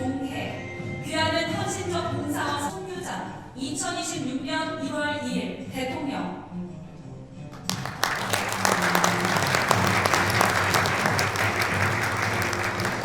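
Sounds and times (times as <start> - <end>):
soft music: 6.5 - 13.0
audience applauding: 7.7 - 13.0.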